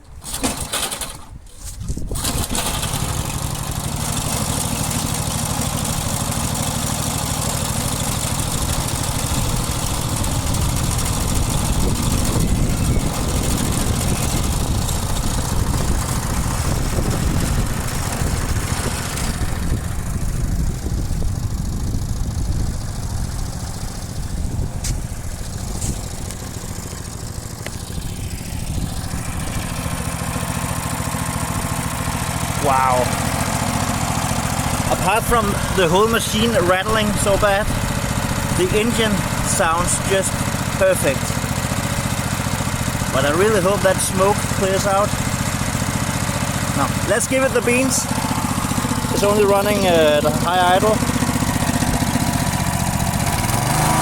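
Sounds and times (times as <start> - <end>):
mower engine pull-started: 0.0 - 54.0
machine rattling: 0.2 - 1.4, 2.1 - 19.9
mower engine running at high idle: 0.2 - 54.0.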